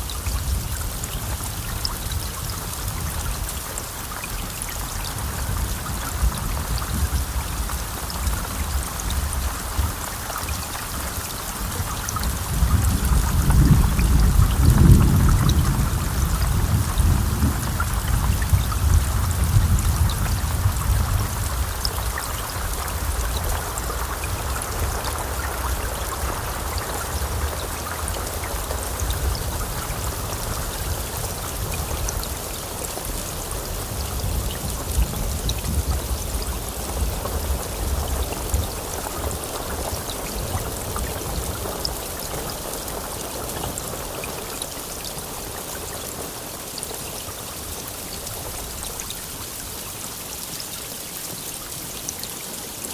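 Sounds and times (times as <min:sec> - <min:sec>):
heavy rain falling: 0:00.0 - 0:52.9
low rolling thunder: 0:04.9 - 0:44.6.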